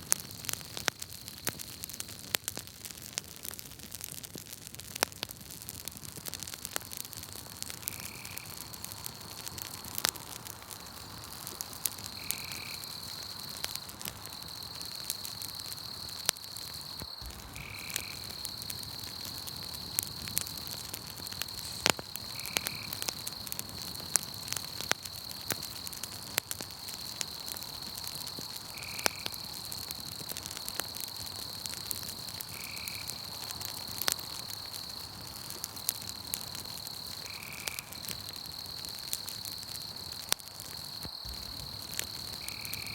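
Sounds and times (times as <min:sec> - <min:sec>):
campfire crackling: 0:00.0 - 0:42.9
high-pitched insect trill: 0:12.0 - 0:13.6, 0:14.3 - 0:25.3, 0:36.1 - 0:40.0, 0:40.8 - 0:42.9.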